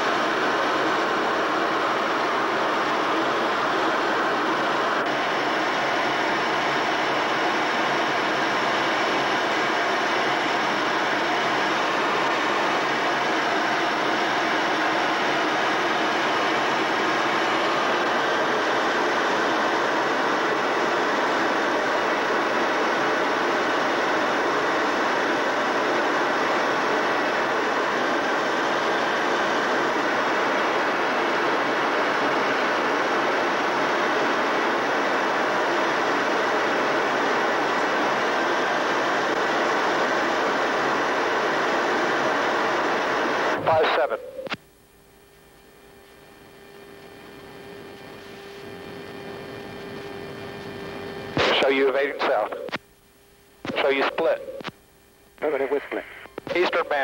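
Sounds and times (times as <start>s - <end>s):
aircraft cabin engine and airflow noise: 20.3s - 44.6s, 55.4s - 57.0s.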